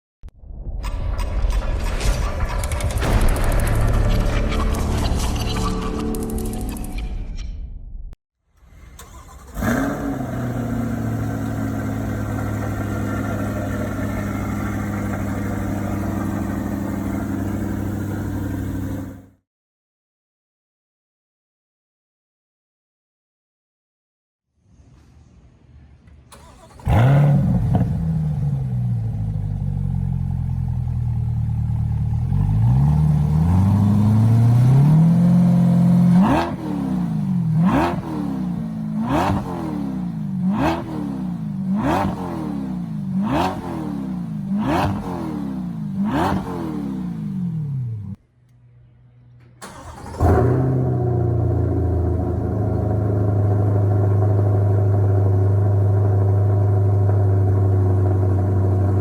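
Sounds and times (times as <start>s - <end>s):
car engine revving and idling: 8.6s - 19.3s, 26.3s - 48.2s, 49.6s - 59.0s.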